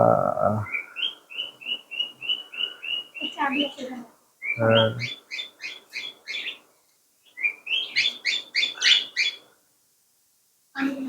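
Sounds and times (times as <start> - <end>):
small birds chirping: 0.0 - 9.6
louder fuller bird call: 4.4 - 6.6.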